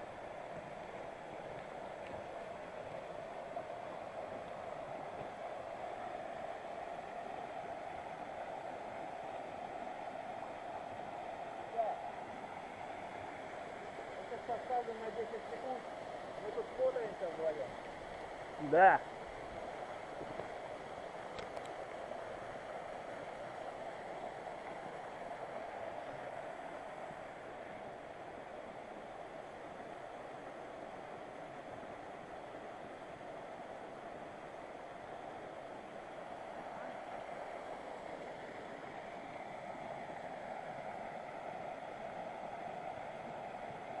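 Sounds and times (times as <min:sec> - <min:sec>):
river rushing over rocks: 0:00.0 - 0:44.0.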